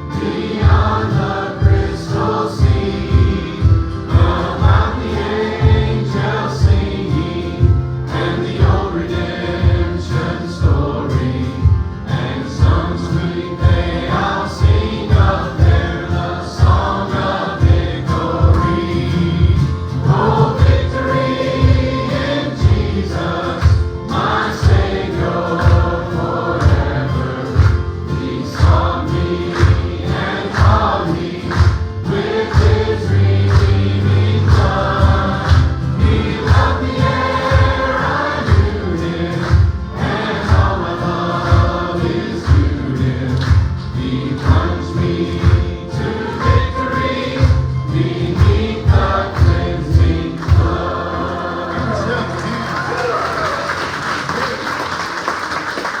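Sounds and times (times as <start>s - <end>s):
band with steady beat and bass: 0.0s - 51.0s
youth choir singing gospel: 0.0s - 56.0s.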